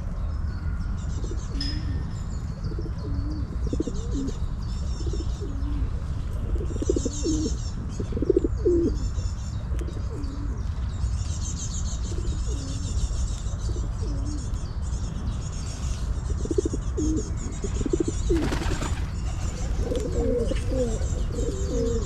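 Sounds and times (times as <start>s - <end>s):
pigeons cooing: 3.0s - 4.4s, 5.0s - 9.0s, 16.4s - 22.0s
small birds chirping: 6.8s - 22.0s.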